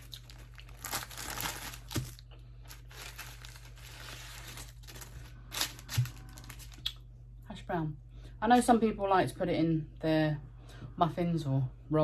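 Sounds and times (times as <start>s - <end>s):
paper wrapping crinkling: 0.0s - 6.9s.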